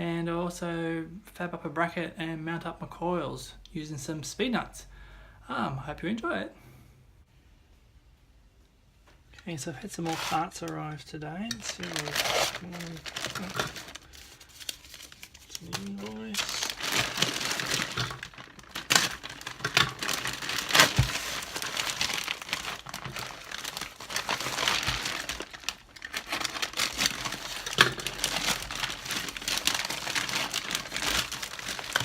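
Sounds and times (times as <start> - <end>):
packaging crinkling and rustling: 9.9 - 32.0
packaging snapping: 11.5 - 32.0.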